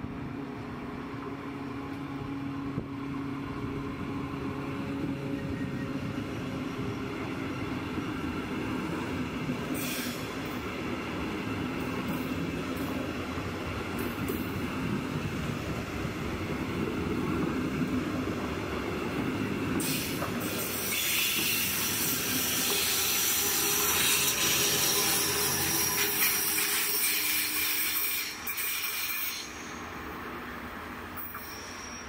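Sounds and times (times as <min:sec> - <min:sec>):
train wheels rumbling on rails: 0:00.0 - 0:32.0
high wheel squeal: 0:19.8 - 0:30.0, 0:31.2 - 0:32.0.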